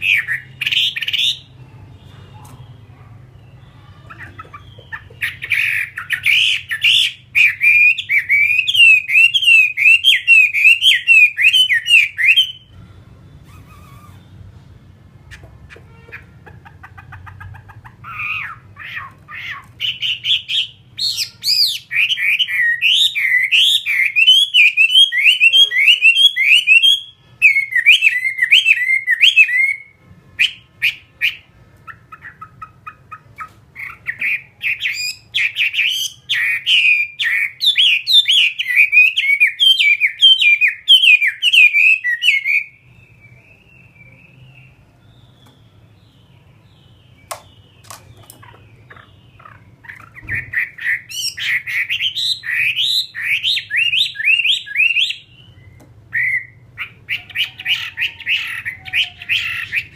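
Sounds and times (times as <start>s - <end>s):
bird singing whistled notes: 5.3s - 12.8s, 19.8s - 31.5s, 33.8s - 59.9s.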